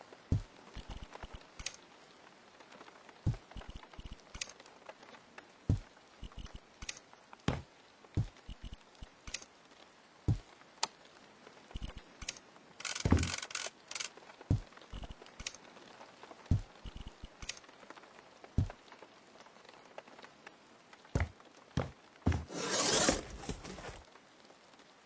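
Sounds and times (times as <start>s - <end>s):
knocks and clicks of handling: 12.8s - 15.1s
scraping rustle: 21.2s - 24.0s.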